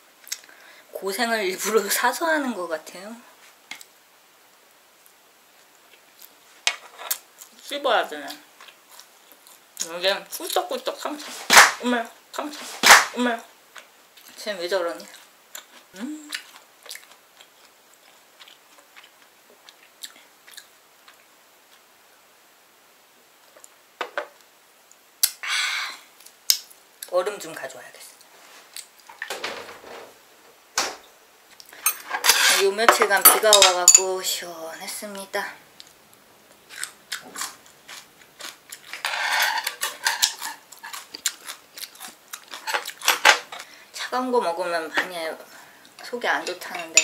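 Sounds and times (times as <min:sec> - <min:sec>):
person chewing food: 0:08.6 - 0:09.9, 0:15.1 - 0:21.9, 0:35.8 - 0:39.0, 0:39.6 - 0:43.7
cutlery clinking on dishes: 0:31.8 - 0:34.1.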